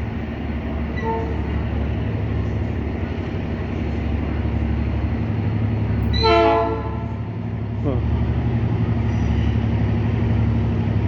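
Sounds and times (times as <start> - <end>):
diesel locomotive engine rumble: 0.0 - 11.0.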